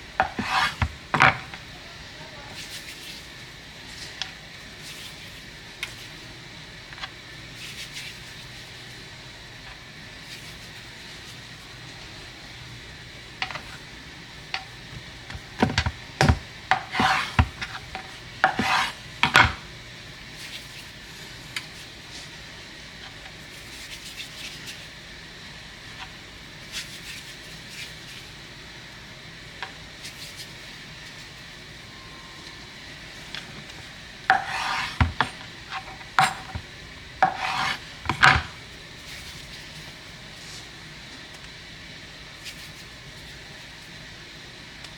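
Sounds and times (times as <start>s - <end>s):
steady background hiss: 0.0s - 44.9s
kitchenware scraping and clinking: 0.2s - 1.6s, 15.6s - 19.7s, 33.4s - 38.6s.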